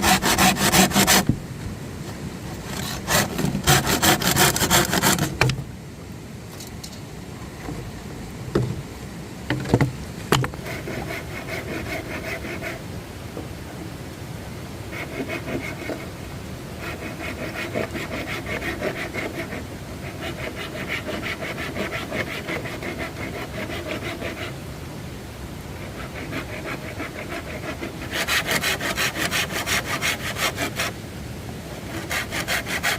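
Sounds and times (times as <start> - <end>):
hand saw cutting wood: 0.0 - 1.4, 2.7 - 5.5, 10.6 - 12.8, 14.9 - 16.1, 16.8 - 24.6, 25.8 - 31.0, 31.9 - 32.9.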